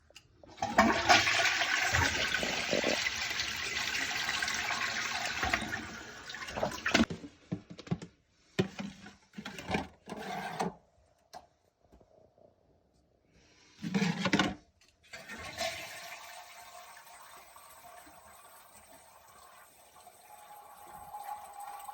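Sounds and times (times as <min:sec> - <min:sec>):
toilet flushing: 0:00.5 - 0:07.1, 0:15.1 - 0:21.9.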